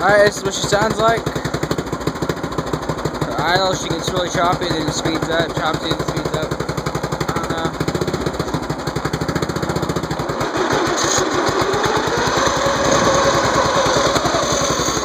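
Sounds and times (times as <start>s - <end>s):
garden tractor engine surging: 0.0s - 15.0s.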